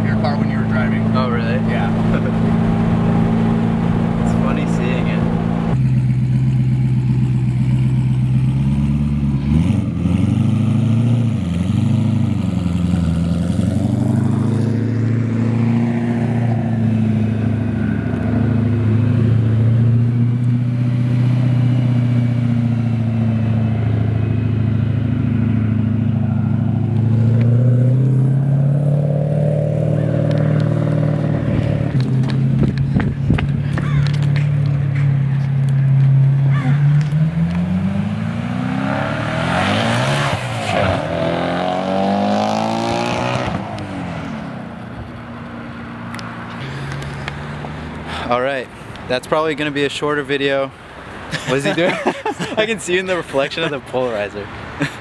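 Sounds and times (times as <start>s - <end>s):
car engine running: 0.0s - 10.1s.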